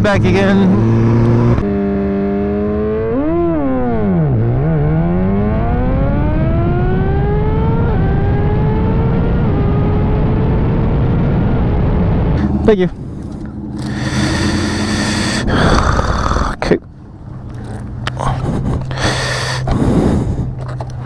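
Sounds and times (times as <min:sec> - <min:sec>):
sport bike engine revving: 0:00.0 - 0:03.2, 0:13.3 - 0:16.8.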